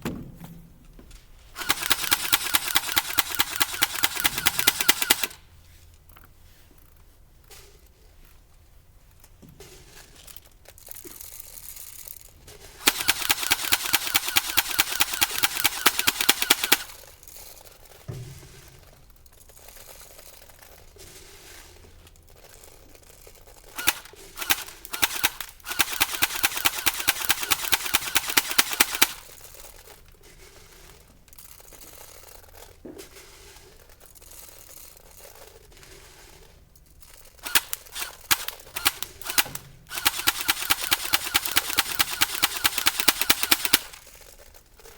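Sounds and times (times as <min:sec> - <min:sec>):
airsoft gun firing: 0:01.6 - 0:05.4, 0:12.8 - 0:17.0, 0:23.8 - 0:29.3, 0:37.4 - 0:44.0.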